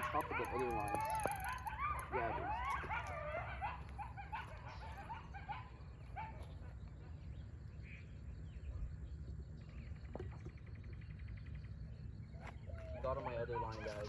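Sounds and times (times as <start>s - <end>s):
canine yipping and howling: 0.0s - 7.2s, 12.4s - 14.0s.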